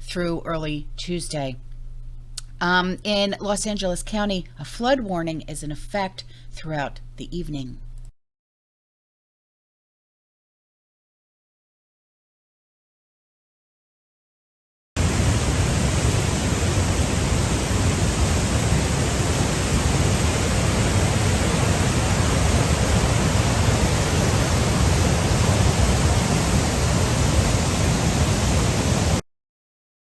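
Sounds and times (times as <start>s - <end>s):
floodwater rushing roar: 15.0s - 29.2s.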